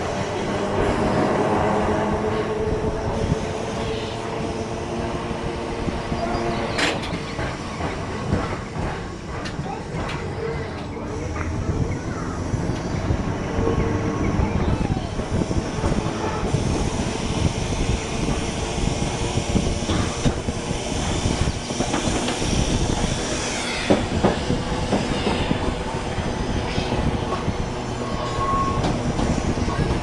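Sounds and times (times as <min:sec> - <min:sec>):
tram rumbling and rattling on rails: 0:00.0 - 0:30.0
high wheel squeal: 0:06.1 - 0:07.3, 0:20.9 - 0:30.0.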